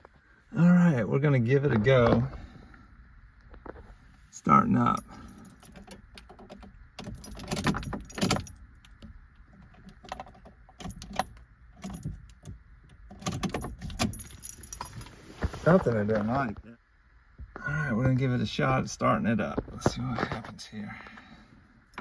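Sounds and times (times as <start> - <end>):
keys jangling: 5.0 - 12.5, 13.1 - 15.2
handling clicks and knocks: 5.0 - 15.2.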